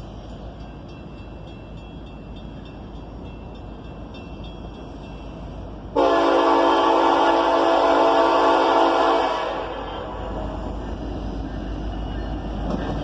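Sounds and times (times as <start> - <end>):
locomotive air horn: 5.9 - 10.3.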